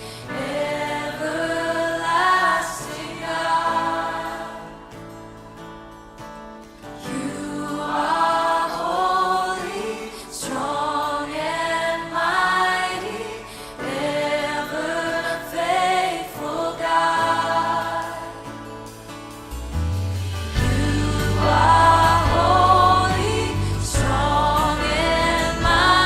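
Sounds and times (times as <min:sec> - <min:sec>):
worship song singing: 0:00.0 - 0:05.2, 0:07.0 - 0:19.2, 0:20.2 - 0:26.0
sustained low chords: 0:19.7 - 0:26.0.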